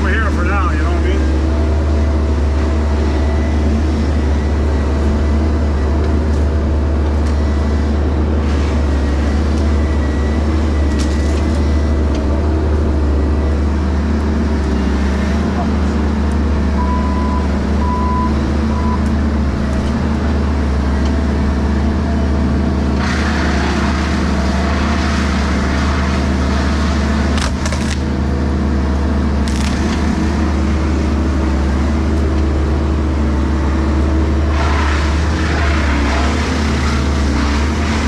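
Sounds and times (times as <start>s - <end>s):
excavator diesel engine running: 0.0s - 38.0s
short beeps: 16.7s - 19.1s
wood cracking: 27.3s - 28.3s, 29.4s - 30.4s.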